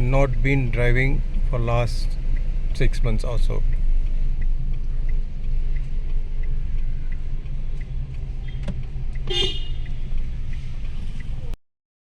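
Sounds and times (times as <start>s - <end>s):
car engine rumble: 0.0s - 11.6s
road noise inside car: 0.0s - 11.6s
faint ticks: 3.6s - 11.5s.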